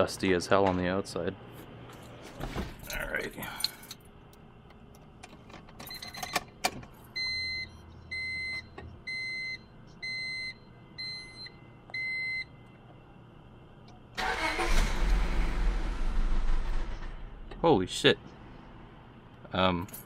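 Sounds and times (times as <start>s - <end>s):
ignition clicks: 13.9s - 15.0s
car engine starting and running: 14.2s - 19.2s.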